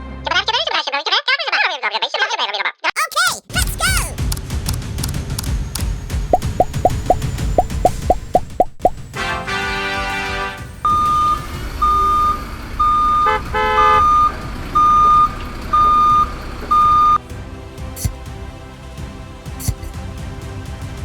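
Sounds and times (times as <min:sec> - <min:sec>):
vehicle reversing beeper: 0:10.9 - 0:13.3, 0:14.0 - 0:17.2.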